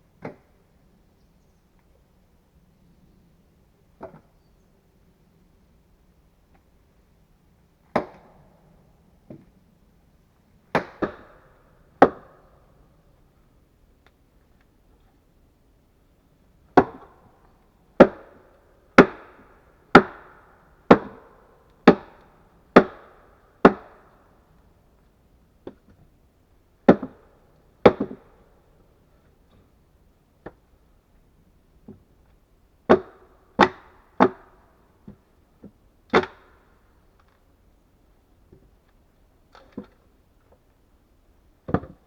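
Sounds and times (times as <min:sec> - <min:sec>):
axe chopping wood: 0:08.0 - 0:08.3, 0:10.7 - 0:11.3, 0:16.8 - 0:17.1, 0:22.8 - 0:24.0, 0:26.9 - 0:27.2, 0:27.8 - 0:28.2, 0:36.1 - 0:36.5.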